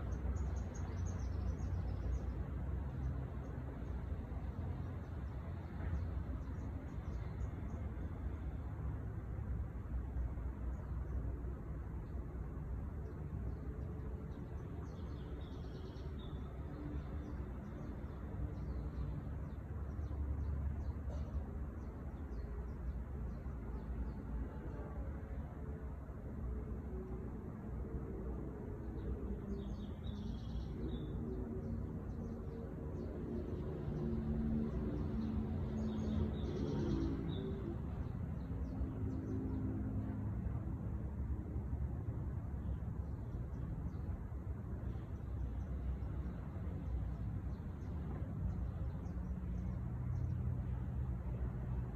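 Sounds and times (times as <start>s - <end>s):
songbird chirps: 0.0s - 9.0s, 12.9s - 26.6s, 28.2s - 39.8s
songbird chirping: 28.9s - 39.7s.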